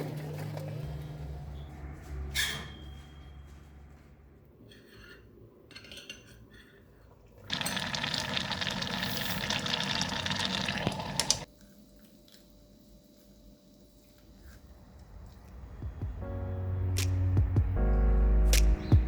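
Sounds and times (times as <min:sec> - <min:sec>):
food sizzling in a pan: 0:07.5 - 0:11.5.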